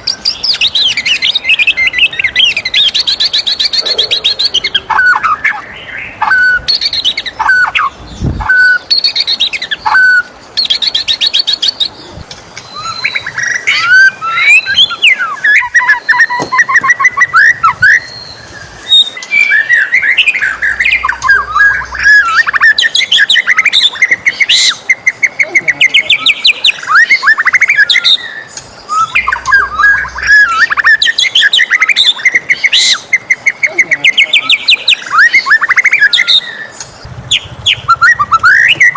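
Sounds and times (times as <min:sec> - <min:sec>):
bird trills and chattering: 0:00.0 - 0:38.9
bird whistled notes: 0:12.7 - 0:25.4, 0:26.0 - 0:33.6, 0:37.3 - 0:38.9.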